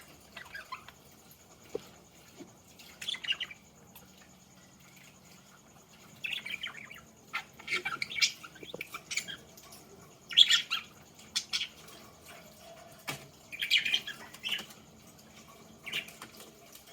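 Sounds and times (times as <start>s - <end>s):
budgerigars chirping: 0.0s - 1.0s, 6.2s - 9.6s, 10.3s - 12.0s, 13.5s - 14.8s.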